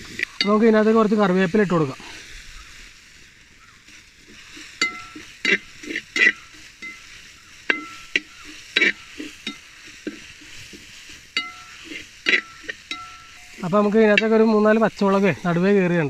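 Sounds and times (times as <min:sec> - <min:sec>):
onions sizzling in oil: 0:00.0 - 0:16.0
metal skimmer scraping and knocking pot: 0:04.2 - 0:15.6.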